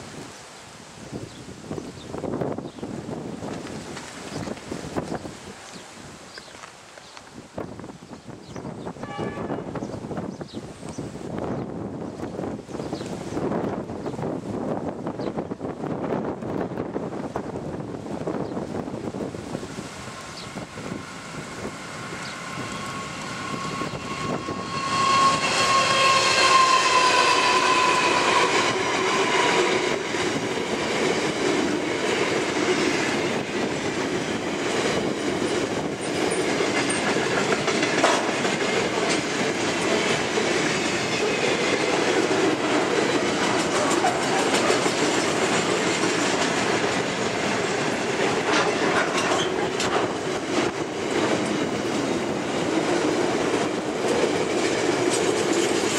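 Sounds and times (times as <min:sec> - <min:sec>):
freight train wheel rumble: 0:01.0 - 0:55.9
diesel locomotives passing: 0:07.2 - 0:55.9
wheels clacking over rail joints: 0:19.5 - 0:55.9.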